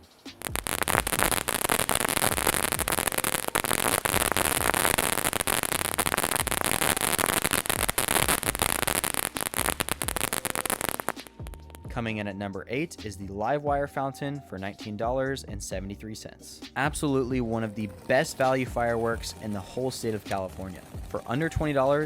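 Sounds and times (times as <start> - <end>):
firework hiss: 0.0 - 11.7, 17.9 - 22.0
firework fountain crackling: 0.0 - 11.8, 17.4 - 22.0.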